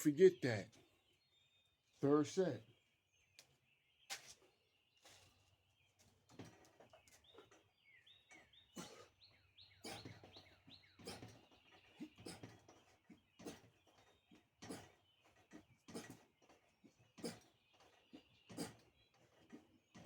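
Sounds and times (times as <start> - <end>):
faint bird chirps: 0.0 - 20.0.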